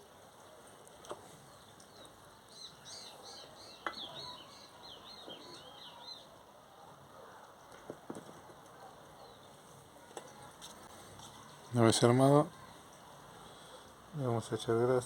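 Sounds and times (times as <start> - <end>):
bird chirping: 1.5 - 6.4.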